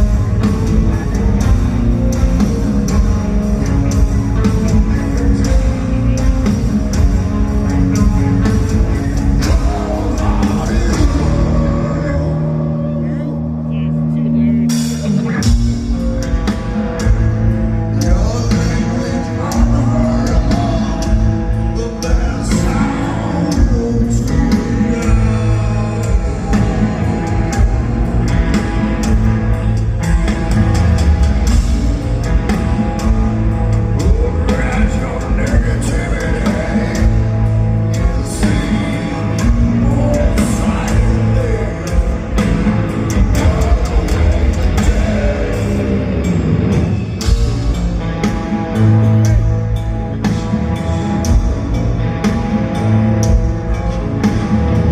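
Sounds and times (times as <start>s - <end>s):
heavy metal band playing live: 0.0s - 54.9s
person singing: 8.0s - 14.5s, 17.9s - 29.1s, 33.9s - 47.4s.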